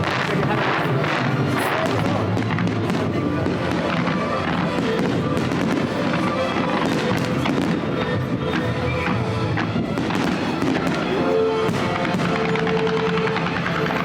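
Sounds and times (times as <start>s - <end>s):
fireworks bursting and crackling: 0.0s - 14.0s.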